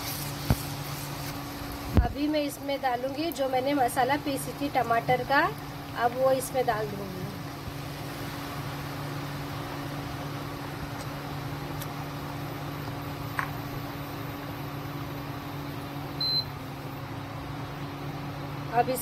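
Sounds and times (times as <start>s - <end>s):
paste frying in hot oil: 0.0s - 16.0s
low mechanical hum: 0.0s - 19.0s
short high beep: 16.2s - 16.5s.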